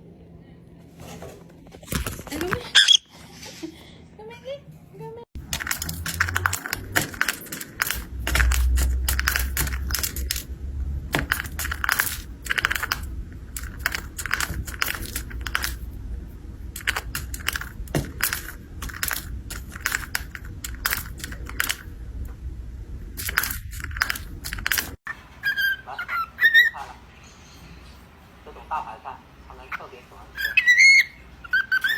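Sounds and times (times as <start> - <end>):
sharp clicks and crunching: 5.4 - 22.4, 23.0 - 25.0
low rumble: 8.0 - 25.0.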